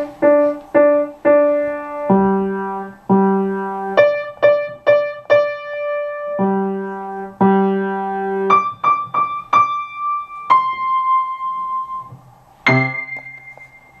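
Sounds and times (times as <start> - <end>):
piano playing: 0.0 - 14.0.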